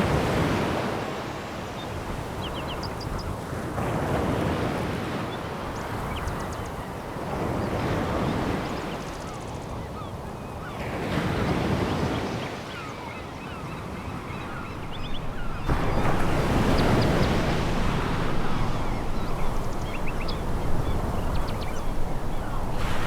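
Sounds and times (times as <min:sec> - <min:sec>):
waves breaking on pebble beach: 0:14.5 - 0:23.0.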